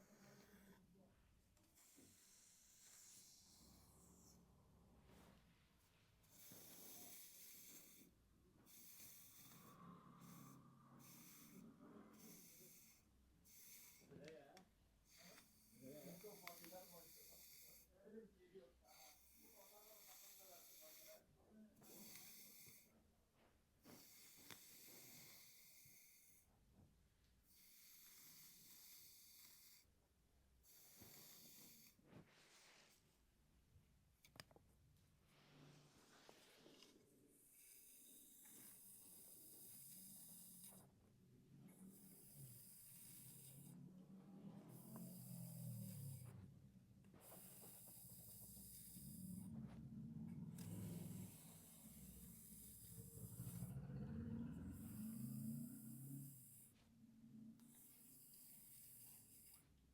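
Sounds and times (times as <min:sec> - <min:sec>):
hairbrush swishing through hair: 0:35.3 - 0:37.0.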